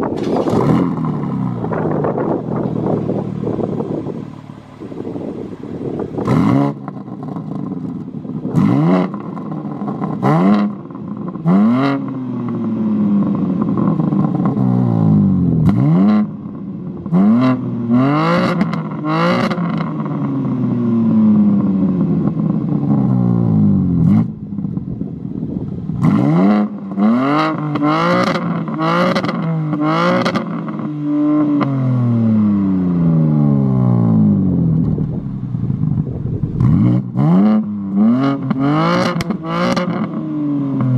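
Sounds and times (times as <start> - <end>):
exhaust crack: 0.0 - 11.8, 33.2 - 40.9
car engine revving: 0.0 - 40.9.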